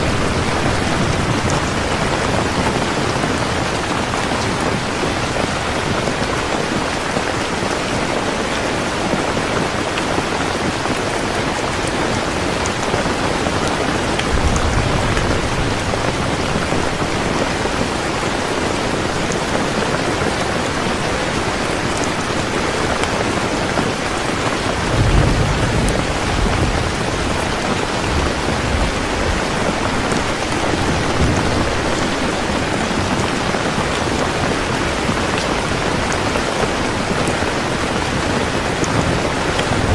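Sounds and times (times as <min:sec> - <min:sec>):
heavy rain falling: 0:00.0 - 0:39.9
distant thunder rumbling: 0:12.3 - 0:18.0, 0:24.6 - 0:34.2.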